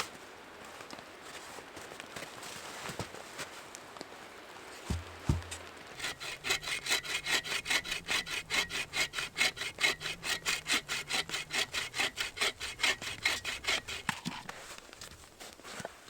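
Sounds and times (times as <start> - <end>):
hand saw cutting wood: 4.9 - 14.6.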